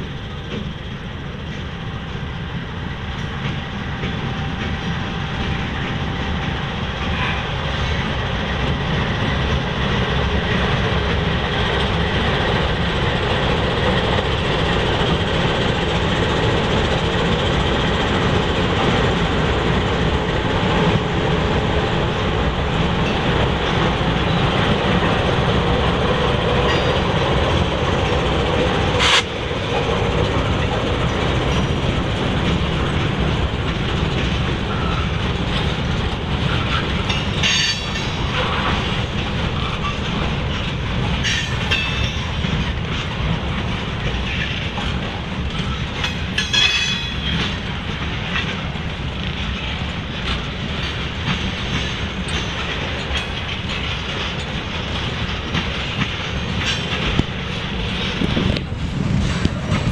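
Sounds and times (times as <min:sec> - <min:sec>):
freight train passing: 0:00.0 - 0:59.9.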